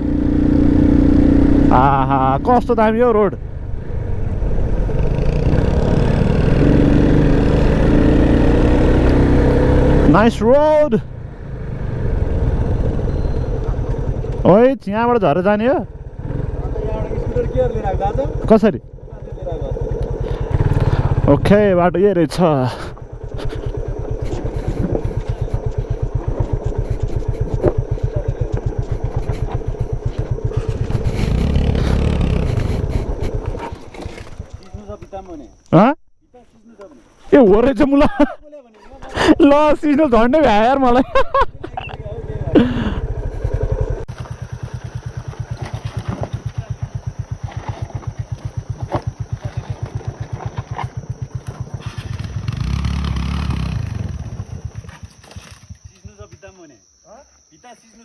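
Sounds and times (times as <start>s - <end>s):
motorcycle engine running: 0.0s - 35.6s, 39.6s - 56.4s
bike knocking on rough ground: 23.0s - 35.4s, 43.4s - 56.6s.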